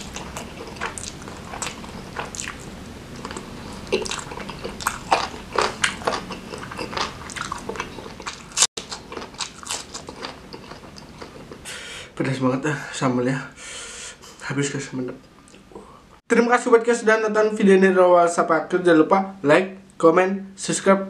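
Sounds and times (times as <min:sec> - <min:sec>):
person chewing with wet smacks: 0:00.0 - 0:11.6.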